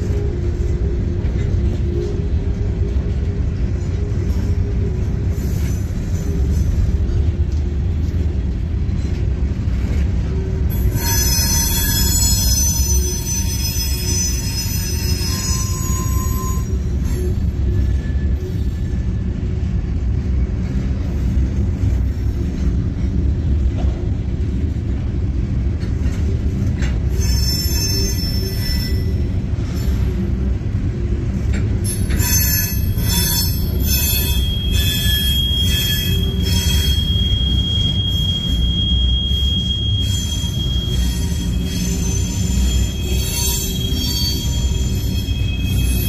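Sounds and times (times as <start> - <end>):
freight cars rumbling on rails: 0.0 - 46.0
high-pitched wheel squeal: 10.7 - 19.4, 26.8 - 30.3, 31.8 - 46.0.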